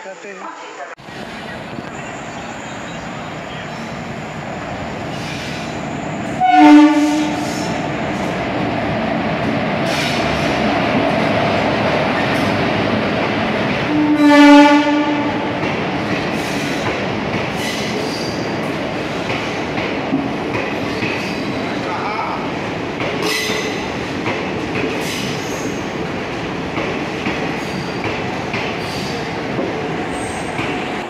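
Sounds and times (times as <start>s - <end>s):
train rumbling and clattering: 0.9s - 31.0s
train horn blasts: 6.4s - 7.8s, 13.9s - 15.5s.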